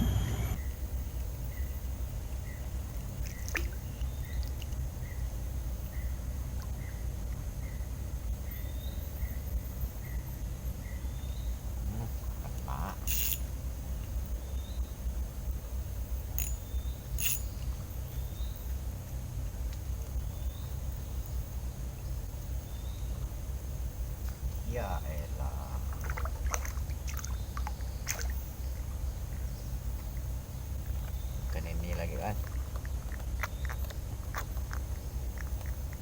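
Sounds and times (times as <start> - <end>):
rising chirp: 0.0 - 0.7
steady low rumble: 0.0 - 36.0.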